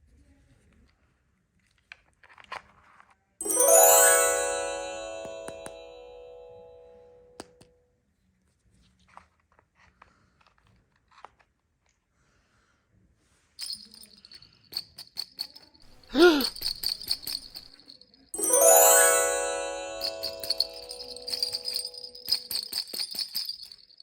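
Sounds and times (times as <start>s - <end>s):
bell-like chimes: 3.4s - 7.4s, 18.4s - 22.8s.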